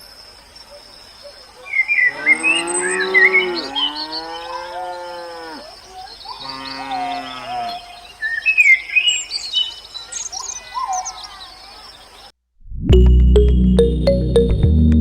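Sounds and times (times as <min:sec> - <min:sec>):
birds chirping: 0:00.6 - 0:12.3
cow mooing: 0:02.0 - 0:05.7, 0:06.4 - 0:08.0.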